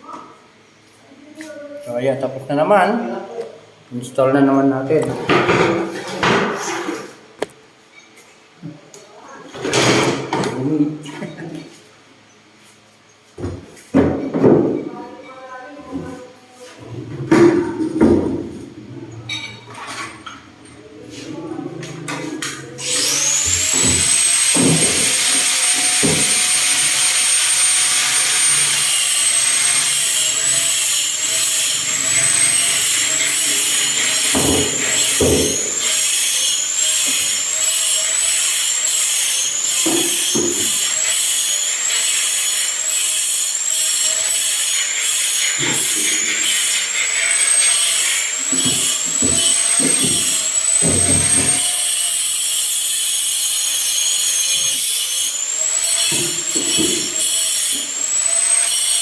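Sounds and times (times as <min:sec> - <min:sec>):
power tool motor whining: 0:22.5 - 0:59.0.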